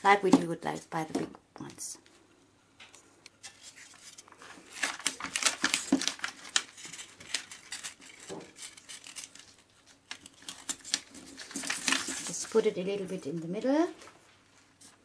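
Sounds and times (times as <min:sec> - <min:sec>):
plastic foil crinkling: 0:03.4 - 0:14.2.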